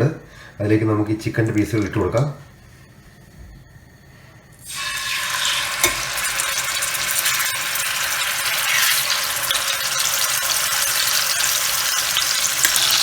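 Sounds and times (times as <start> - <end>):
chicken sizzling in hot oil: 4.6 - 13.0.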